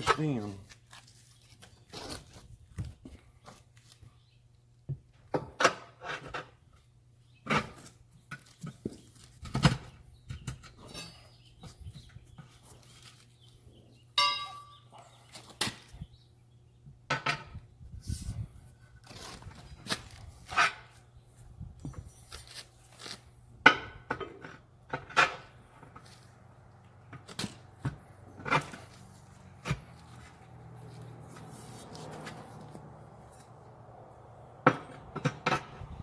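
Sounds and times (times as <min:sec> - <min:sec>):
tools clinking on metal wheel rim: 0:14.2 - 0:14.9.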